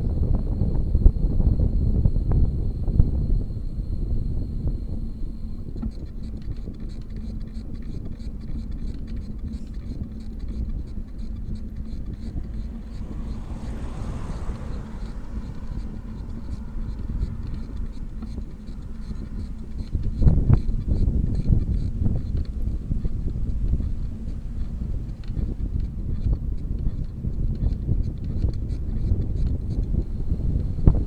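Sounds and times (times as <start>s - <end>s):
bicycle road rumble: 0.0s - 31.0s
wind buffeting microphone: 0.0s - 31.0s
vehicle passing with hiss: 9.7s - 31.0s.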